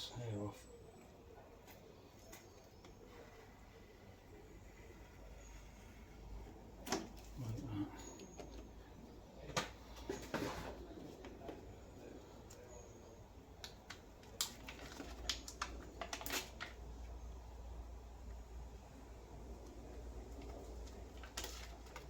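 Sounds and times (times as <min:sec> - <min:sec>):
sheet material clicks and rustles: 0:13.6 - 0:17.2, 0:19.6 - 0:22.0.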